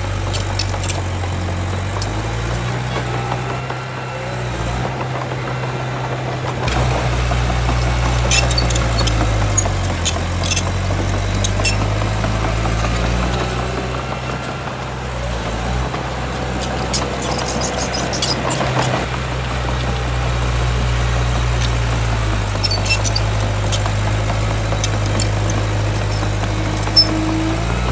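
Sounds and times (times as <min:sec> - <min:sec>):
heavy diesel engine running: 0:00.0 - 0:27.9
metallic clicks and squeaks: 0:00.1 - 0:03.5, 0:06.6 - 0:13.9, 0:16.2 - 0:20.0, 0:20.6 - 0:27.9.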